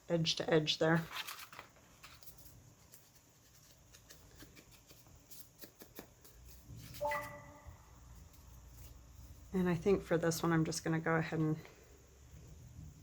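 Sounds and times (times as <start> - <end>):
paper rustling: 1.0 - 7.0.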